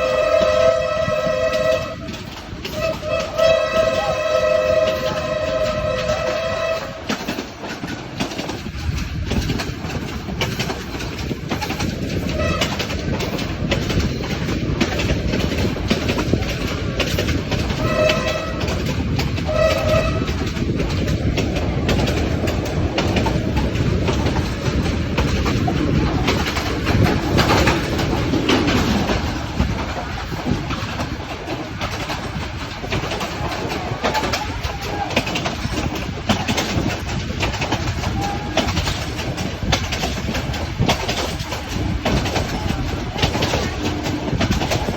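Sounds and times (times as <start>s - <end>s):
train horn blasts: 0.0s - 7.5s, 12.3s - 13.3s, 17.5s - 20.7s, 37.9s - 39.2s
train rumbling on tracks: 0.0s - 44.9s
wheels clacking over rail joints: 0.0s - 44.9s.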